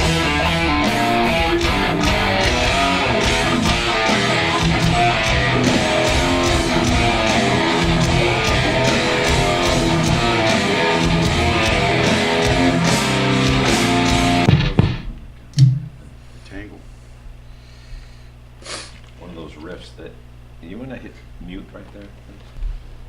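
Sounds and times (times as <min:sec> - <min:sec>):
heavy electric guitar riff: 0:00.0 - 0:15.3
steady drum beat: 0:00.0 - 0:16.0.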